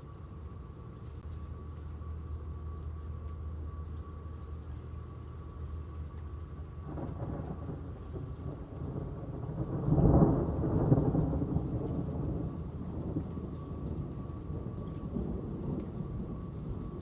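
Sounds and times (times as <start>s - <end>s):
low hum: 0.0s - 17.0s
steady rain: 0.0s - 17.0s
thunder rolling: 6.8s - 17.0s.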